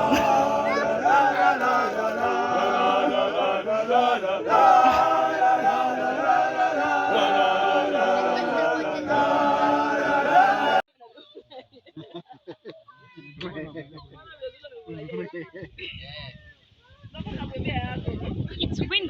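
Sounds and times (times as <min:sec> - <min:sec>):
choir singing a worship song: 0:00.0 - 0:10.9.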